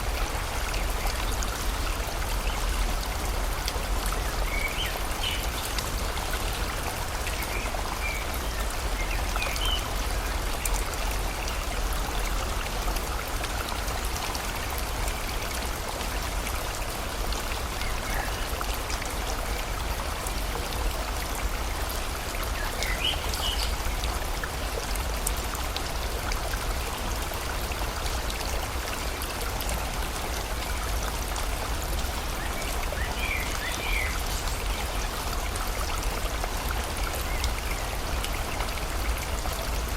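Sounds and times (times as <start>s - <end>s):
rain falling: 0.0s - 39.9s
river flowing: 0.0s - 39.9s.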